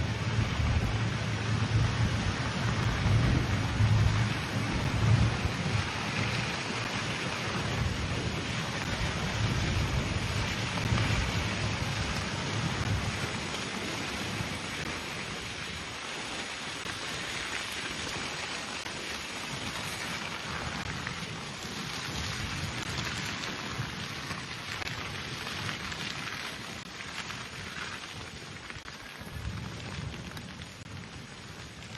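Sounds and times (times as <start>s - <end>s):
vegetation fire crackling: 0.0s - 31.9s
wind rumble on microphone: 0.0s - 31.9s.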